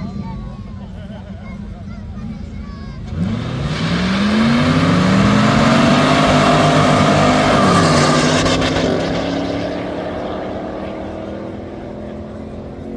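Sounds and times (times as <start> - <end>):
car engines revving hard: 3.0 - 12.9.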